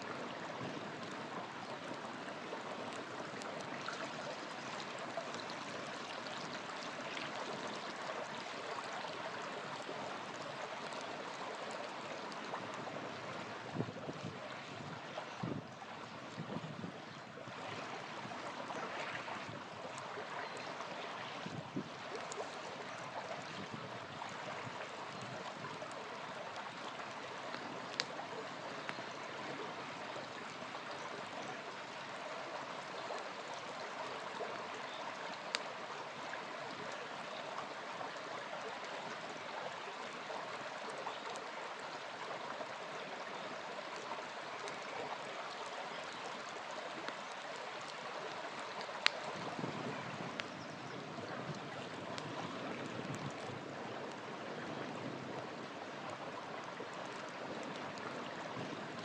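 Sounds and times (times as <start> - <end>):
small river flowing: 0.0 - 59.0
campfire pops: 27.5 - 28.2.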